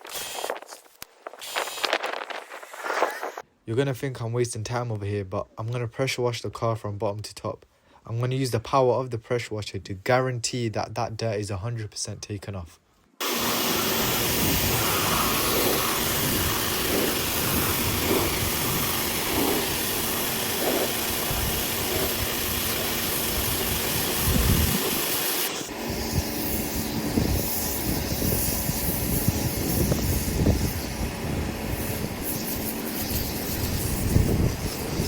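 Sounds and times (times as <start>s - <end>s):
pressure washer spraying water: 0.0s - 0.6s, 13.2s - 35.0s.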